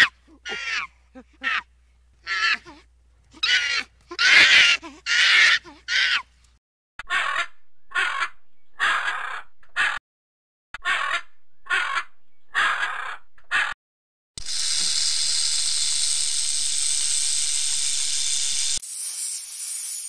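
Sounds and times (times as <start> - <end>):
macaw squawking: 3.4 - 6.2, 7.0 - 10.0, 10.8 - 13.8.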